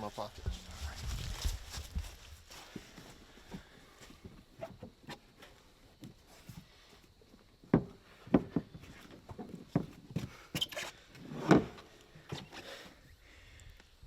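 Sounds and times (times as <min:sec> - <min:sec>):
irregular knocks and thumps: 0:07.6 - 0:10.4.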